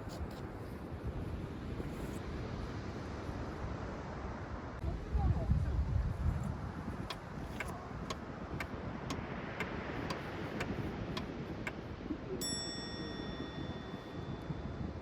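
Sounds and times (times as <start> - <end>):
low wind rumble: 0.0 - 15.0
bell-like ding: 12.4 - 15.0.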